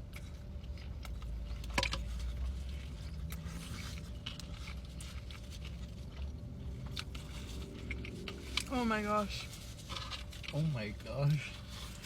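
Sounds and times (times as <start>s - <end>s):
chewing: 0.0s - 8.7s
low steady hum: 0.0s - 12.0s.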